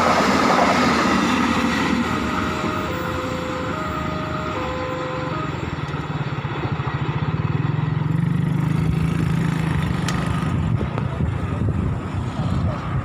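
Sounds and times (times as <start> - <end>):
level crossing warning chime: 2.0 - 5.9.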